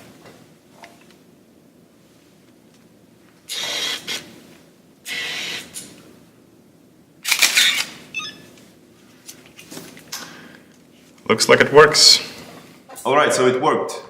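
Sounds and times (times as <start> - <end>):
camera shutter clatter: 7.2 - 8.0.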